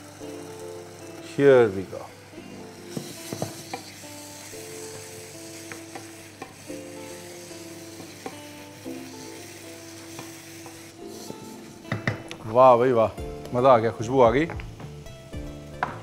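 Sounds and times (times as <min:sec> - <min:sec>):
food sizzling in a pan: 0:00.0 - 0:16.0
spatula knocking against pan: 0:11.9 - 0:12.3.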